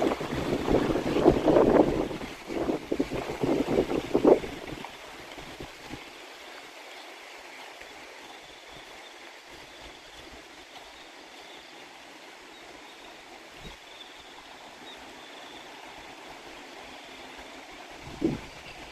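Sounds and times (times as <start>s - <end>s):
wind buffeting microphone: 0.0s - 6.0s, 18.0s - 18.9s
water flowing: 0.0s - 18.9s.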